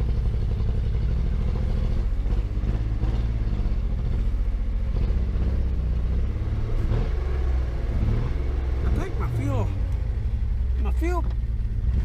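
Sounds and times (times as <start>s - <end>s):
car engine running poorly: 0.0s - 12.0s.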